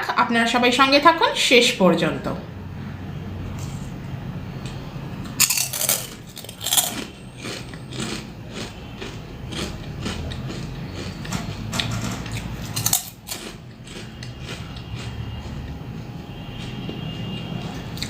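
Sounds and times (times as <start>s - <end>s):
crunching fried snacks: 5.3s - 11.3s, 12.7s - 15.8s.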